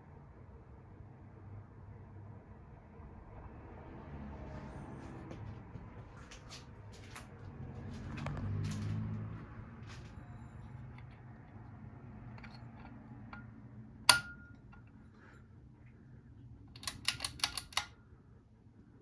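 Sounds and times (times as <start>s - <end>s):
ceiling fan humming: 10.2s - 19.0s
sharp clicks: 16.8s - 18.0s.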